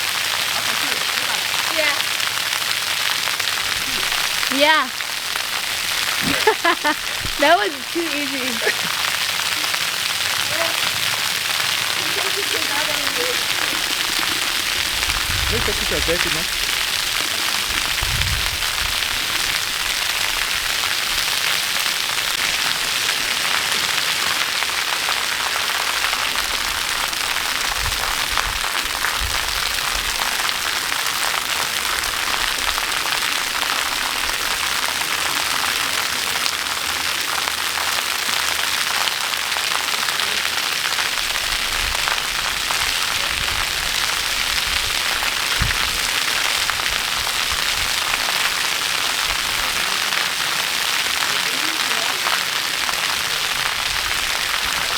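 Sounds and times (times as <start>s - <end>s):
waterfall splashing: 0.0s - 54.9s.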